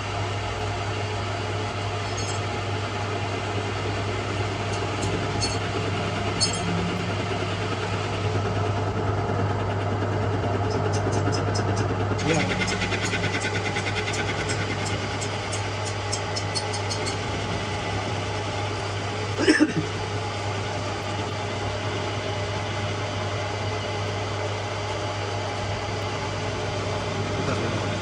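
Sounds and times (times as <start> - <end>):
workshop machinery humming: 0.0 - 28.0
light regular ticking: 12.5 - 18.0.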